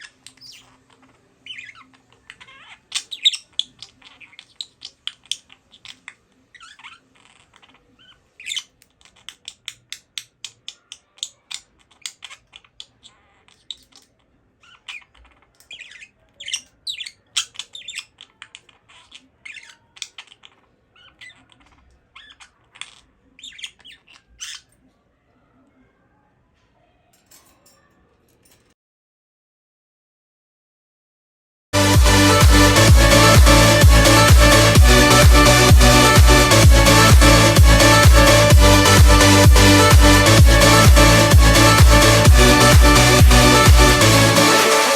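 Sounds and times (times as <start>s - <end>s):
budgerigar chirping and chattering: 0.0s - 24.9s.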